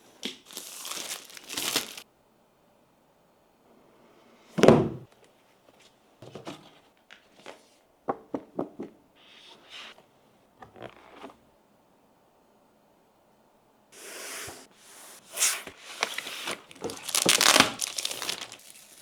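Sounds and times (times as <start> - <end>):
box rustling: 0.5 - 2.0, 14.8 - 19.0.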